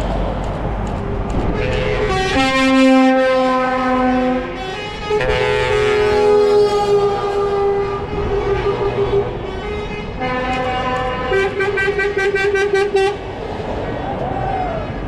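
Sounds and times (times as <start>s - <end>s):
truck air horns blowing: 1.5s - 13.3s
horn pulsing rapidly: 1.6s - 14.1s.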